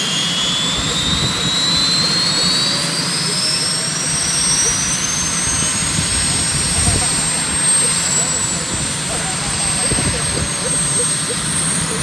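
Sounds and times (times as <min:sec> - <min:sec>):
helicopter turbine engine spooling up: 0:00.0 - 0:12.0.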